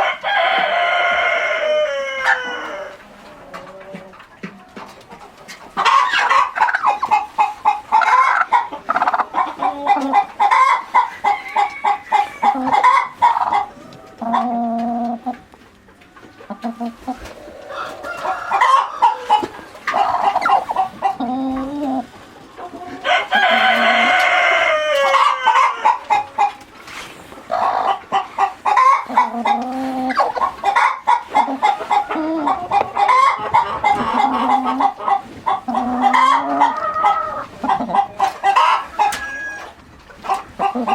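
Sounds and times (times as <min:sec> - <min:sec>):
chickens clucking: 0:00.0 - 0:40.9
drawn-out chicken call: 0:00.0 - 0:40.9.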